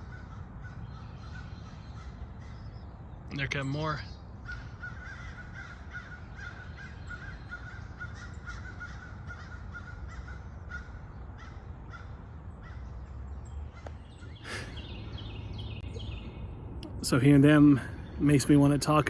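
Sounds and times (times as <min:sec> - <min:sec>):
crows cawing: 0:00.0 - 0:02.8, 0:04.4 - 0:13.0.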